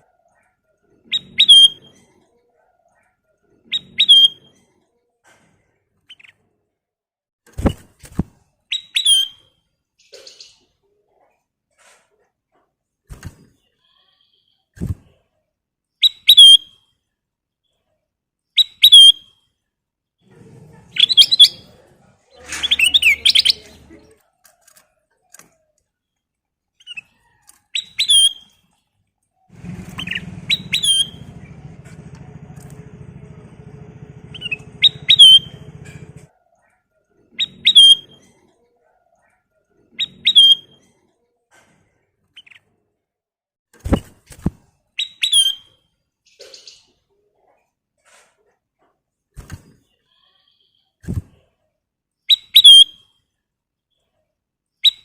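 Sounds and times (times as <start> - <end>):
low background rumble: 29.5 - 36.3
bird whistled call notes: 30.0 - 31.2, 34.3 - 35.6.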